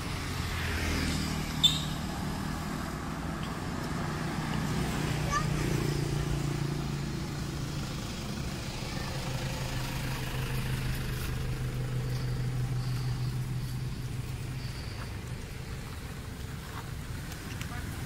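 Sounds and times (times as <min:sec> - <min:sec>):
vehicle engine idling: 0:00.0 - 0:18.0
faint high-pitched chirps: 0:11.6 - 0:15.5.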